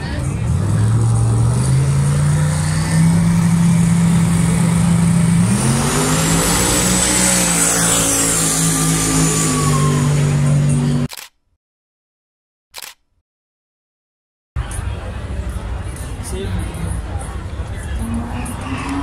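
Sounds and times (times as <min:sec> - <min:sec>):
racing car engine revving: 0:00.0 - 0:11.1, 0:17.7 - 0:19.0.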